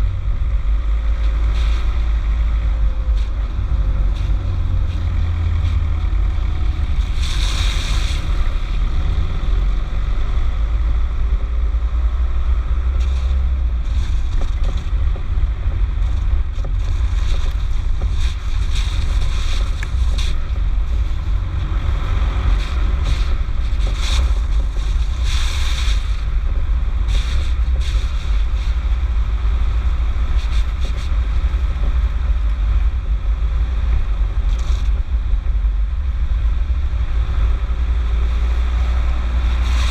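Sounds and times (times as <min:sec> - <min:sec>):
diesel engine rumbling: 0:00.0 - 0:39.9.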